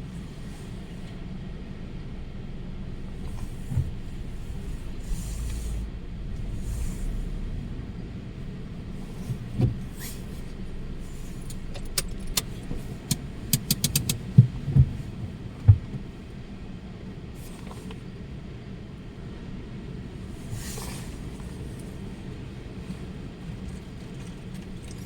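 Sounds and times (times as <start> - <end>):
low rumble: 0.0 - 13.5
sharp clicks and knocks: 11.4 - 15.0.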